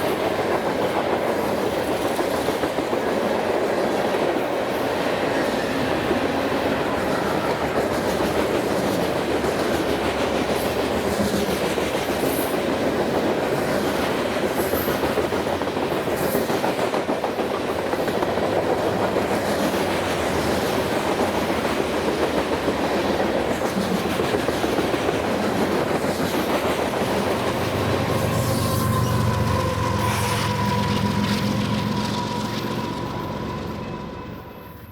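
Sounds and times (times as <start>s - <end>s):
train wheels clickety-clack: 0.0s - 34.9s.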